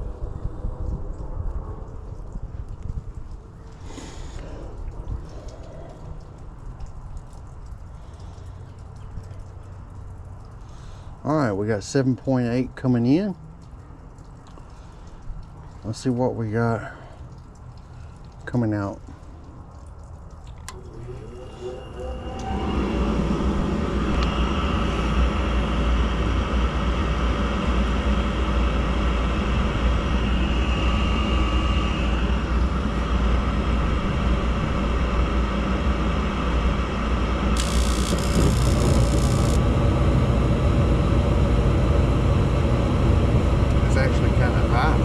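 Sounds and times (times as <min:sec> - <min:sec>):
motor spinning up with whine: 0:20.7 - 0:45.0
furnace rushing rumble: 0:20.8 - 0:35.8, 0:36.4 - 0:40.1.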